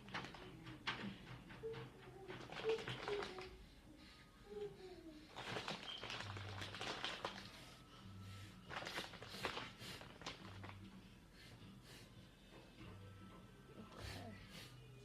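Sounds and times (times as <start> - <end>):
wrapper crinkling while eating: 5.4 - 7.8, 8.7 - 10.9.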